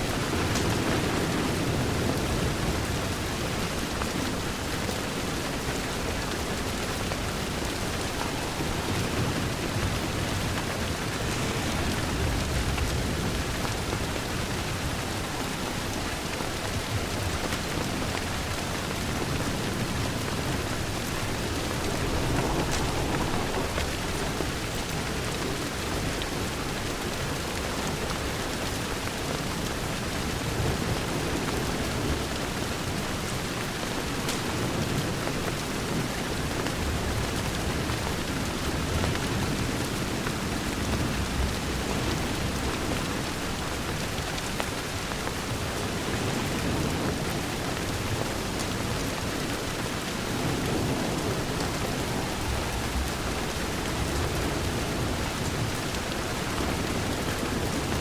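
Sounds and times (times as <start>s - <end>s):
wood fire crackling: 0.0s - 30.4s
rain on a window: 0.0s - 58.0s.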